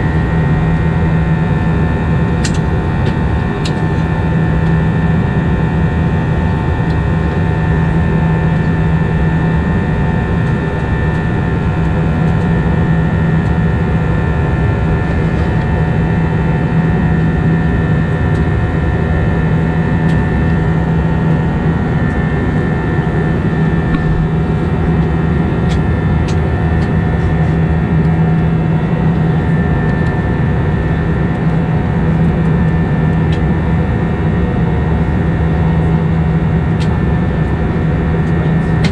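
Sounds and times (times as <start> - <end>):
jet engine hum: 0.0 - 38.9
rushing airflow: 23.8 - 24.8.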